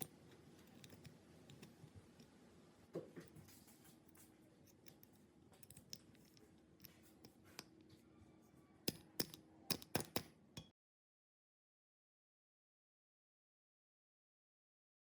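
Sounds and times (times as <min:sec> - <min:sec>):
faint steady hum: 0:00.0 - 0:10.7
small hard parts clicking: 0:08.9 - 0:10.3.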